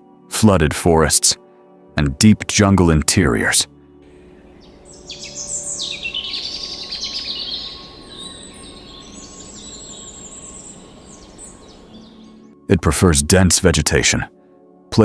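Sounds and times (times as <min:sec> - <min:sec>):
birds chirping and calling: 0:04.1 - 0:12.4
steady low background noise: 0:04.1 - 0:12.4.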